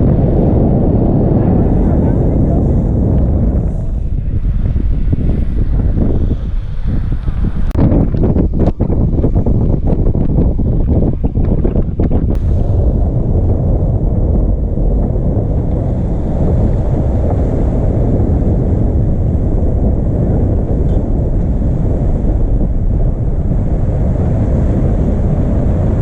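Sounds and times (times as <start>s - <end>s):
wind rumble on microphone: 0.0s - 26.0s
waves rushing: 12.4s - 26.0s.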